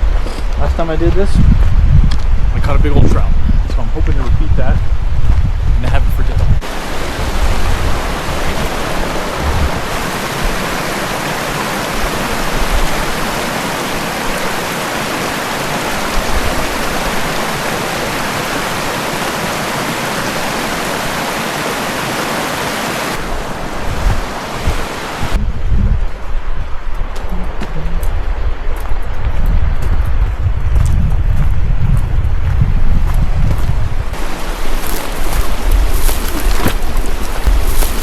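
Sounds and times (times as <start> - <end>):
wind rumble on microphone: 0.0 - 18.9, 23.1 - 38.0
stream rushing over rocks: 6.6 - 25.4, 34.1 - 38.0.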